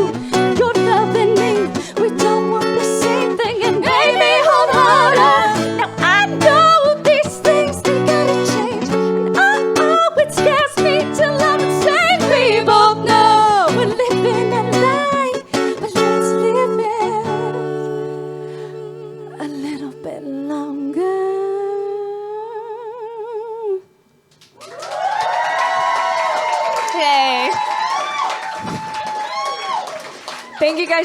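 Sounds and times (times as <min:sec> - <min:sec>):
plucked acoustic guitar: 0:00.0 - 0:20.3.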